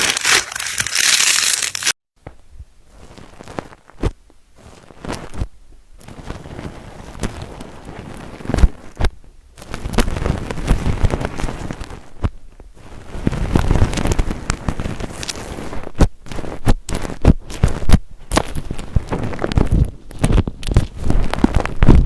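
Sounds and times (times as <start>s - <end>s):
slime crackling and popping: 0.0s - 2.0s.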